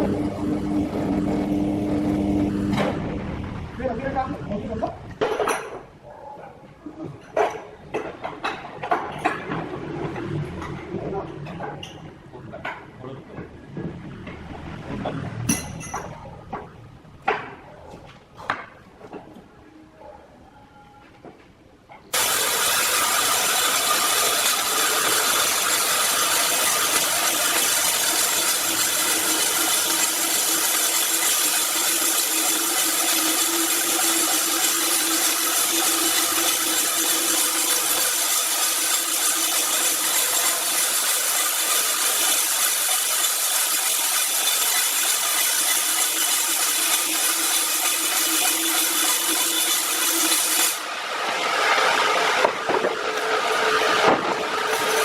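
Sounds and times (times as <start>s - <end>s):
power saw cutting wood: 0.0s - 3.1s, 22.1s - 55.0s.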